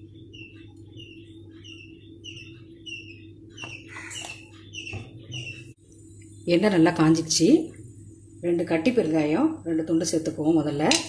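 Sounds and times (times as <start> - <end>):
small bird chirping: 0.0 - 6.4
steady low hum: 0.0 - 11.0.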